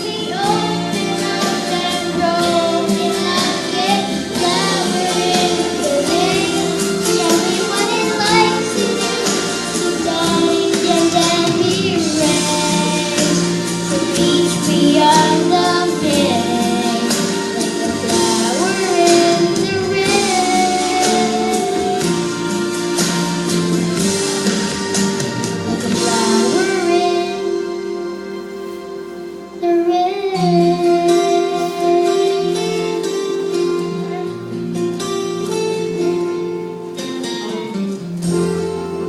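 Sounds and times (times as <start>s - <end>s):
instrumental backing track: 0.0s - 39.0s.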